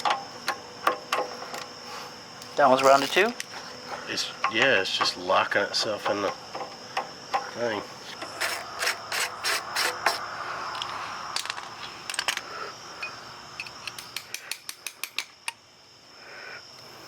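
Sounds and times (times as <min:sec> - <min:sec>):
socket ratchet clicking: 0:13.6 - 0:15.6.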